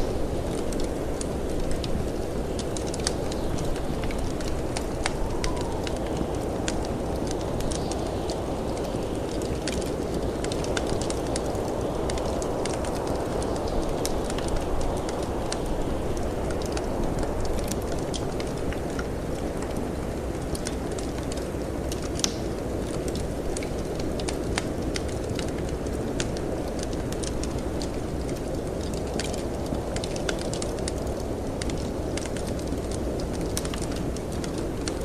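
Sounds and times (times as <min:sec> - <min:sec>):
howling storm wind: 0:00.0 - 0:35.0
wood fire crackling: 0:00.0 - 0:35.0
fire pops and snaps: 0:00.4 - 0:35.0.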